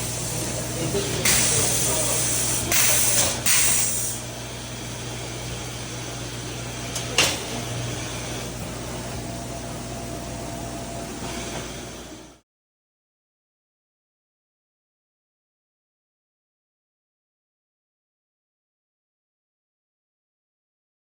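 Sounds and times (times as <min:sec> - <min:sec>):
steady machine hum: 0:00.0 - 0:12.4.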